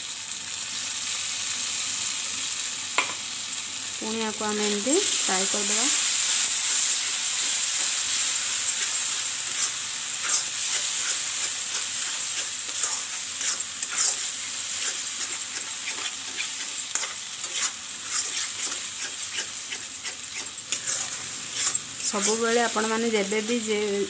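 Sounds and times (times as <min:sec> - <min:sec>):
onions sizzling in oil: 0:00.0 - 0:24.0
metal spatula scraping pan: 0:04.7 - 0:23.9.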